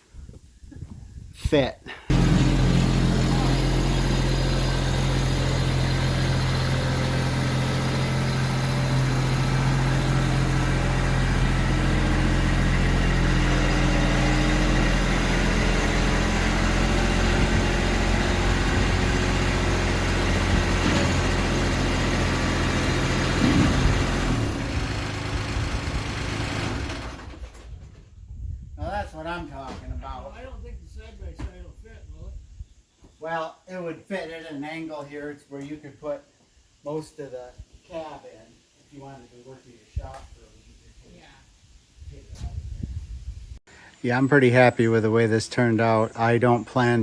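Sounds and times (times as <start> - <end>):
tractor diesel engine running: 2.1 - 27.8.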